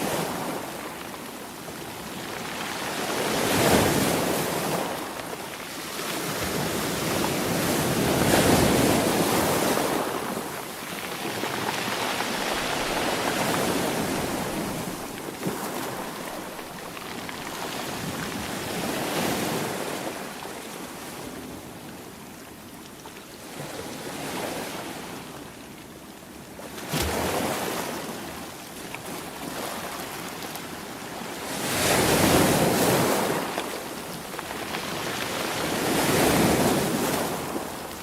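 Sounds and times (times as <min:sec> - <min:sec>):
sea waves breaking: 0:06.0 - 0:21.1.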